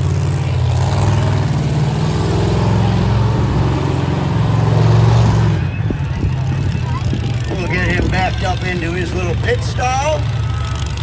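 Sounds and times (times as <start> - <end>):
monster truck engine running: 0.0 - 11.0.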